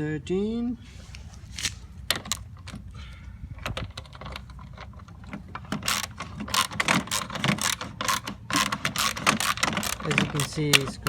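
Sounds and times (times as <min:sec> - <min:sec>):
ratchet wrench clicking: 0:05.6 - 0:11.0.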